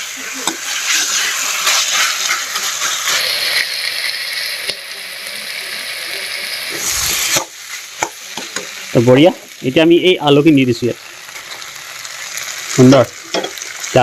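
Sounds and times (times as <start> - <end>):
chicken sizzling in a pan: 0.0 - 14.0
spatula scraping a pan: 0.2 - 3.2.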